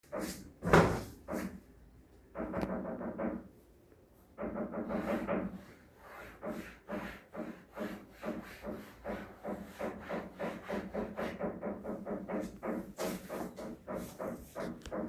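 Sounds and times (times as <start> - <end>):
knocking on roof: 4.4 - 5.8, 6.4 - 15.0.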